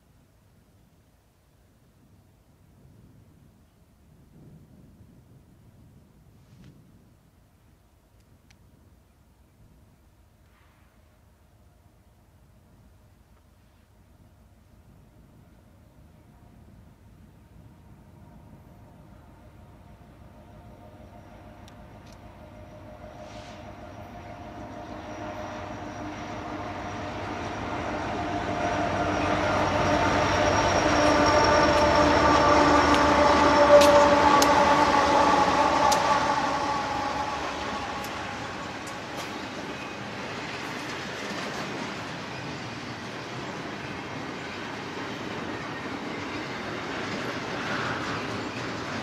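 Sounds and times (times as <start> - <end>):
train rolling past: 14.0 - 49.0.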